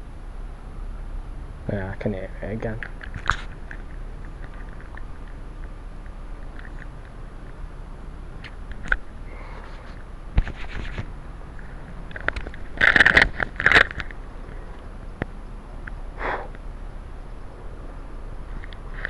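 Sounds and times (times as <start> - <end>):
microphone handling rustling: 8.4 - 14.2.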